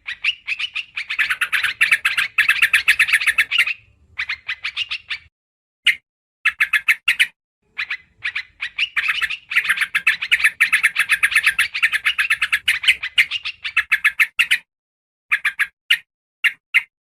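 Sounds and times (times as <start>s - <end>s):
bird chattering bubbly notes: 0.0s - 5.2s.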